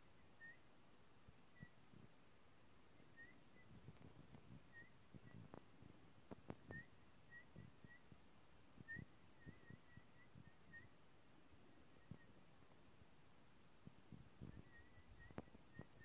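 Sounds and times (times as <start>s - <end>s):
baby bird chirping: 0.2s - 0.7s, 1.5s - 1.8s, 3.0s - 3.8s, 4.6s - 5.6s, 6.5s - 8.2s, 8.8s - 11.0s, 11.8s - 12.4s, 14.4s - 16.0s.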